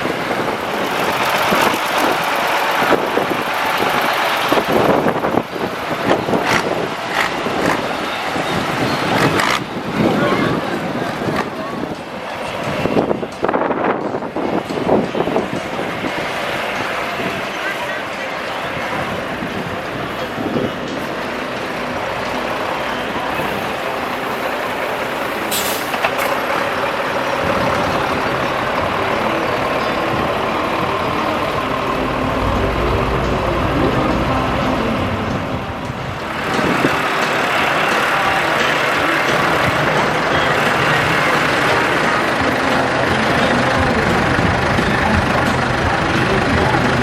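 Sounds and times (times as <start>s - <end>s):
heavy diesel engines running: 0.0s - 47.0s
short hiss: 25.5s - 26.0s.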